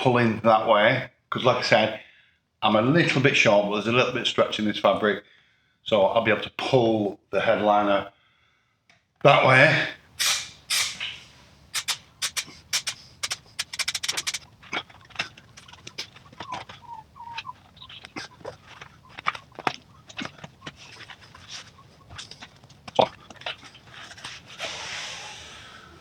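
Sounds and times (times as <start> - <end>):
hands clicking and tapping on frame: 11.8 - 14.4.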